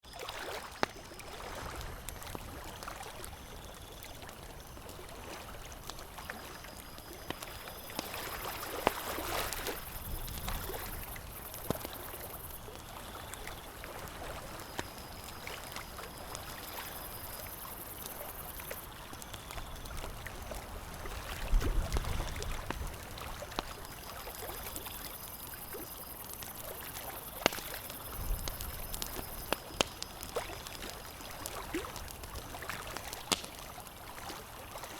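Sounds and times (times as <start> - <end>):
campfire crackling and popping: 0.7 - 34.8
steady watery wash: 4.1 - 34.9.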